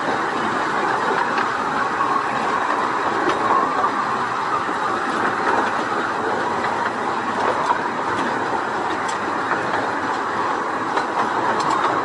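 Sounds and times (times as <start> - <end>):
wheels running on rail: 0.0 - 12.0.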